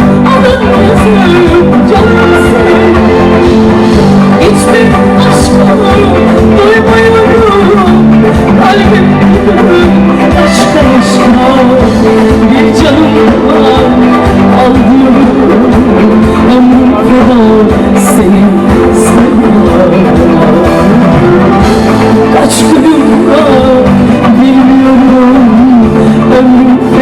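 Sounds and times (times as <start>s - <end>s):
loud live band music: 0.0s - 27.0s.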